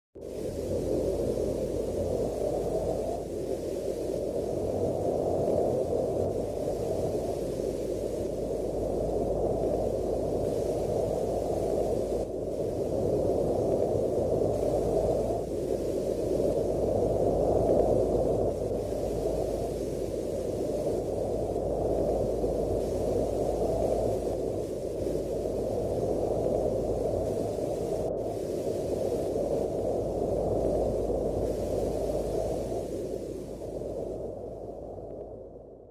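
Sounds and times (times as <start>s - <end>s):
wind blowing in gusts: 0.2s - 35.9s.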